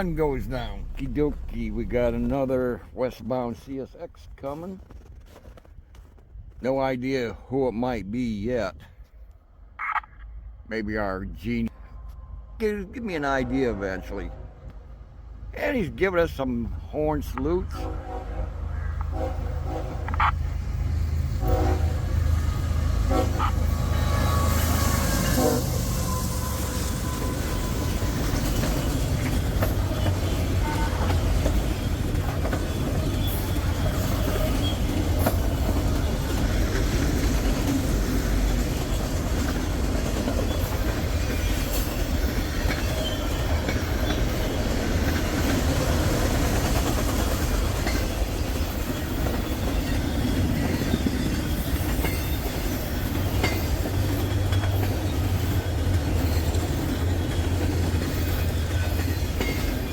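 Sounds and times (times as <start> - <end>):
freight train rumbling past: 0.0 - 4.7, 10.7 - 59.9
wheels clicking over rail joints: 26.8 - 59.9.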